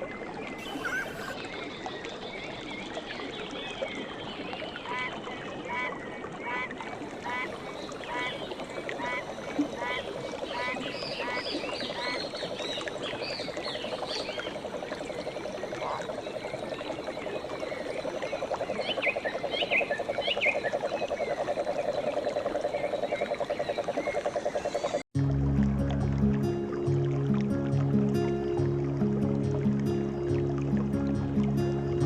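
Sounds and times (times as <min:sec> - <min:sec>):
frogs calling in a trill: 0:00.6 - 0:01.4, 0:07.3 - 0:25.0
high chirping and whistled calls: 0:00.6 - 0:01.4.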